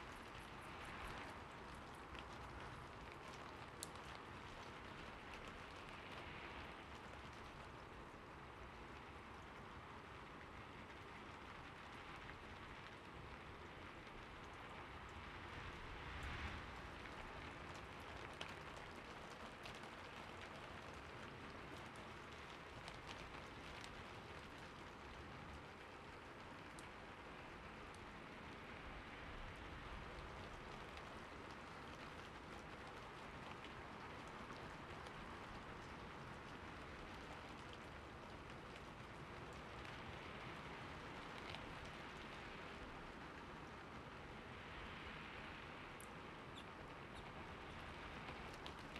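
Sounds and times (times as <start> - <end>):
rain-like hiss: 0.0 - 48.9
light ticks: 0.1 - 7.4, 38.5 - 42.7.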